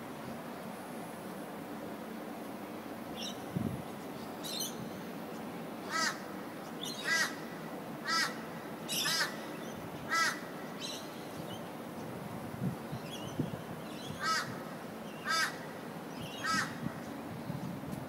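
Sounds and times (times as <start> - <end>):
steady background noise: 0.0 - 18.0
crow calling: 5.8 - 11.0, 14.0 - 17.0.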